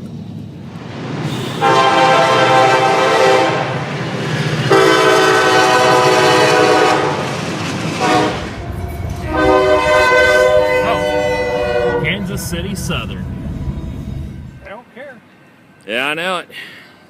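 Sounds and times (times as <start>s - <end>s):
low rumble of passing train: 0.0s - 16.2s
train air horn blasts: 1.2s - 3.9s, 4.7s - 7.4s, 8.0s - 12.4s.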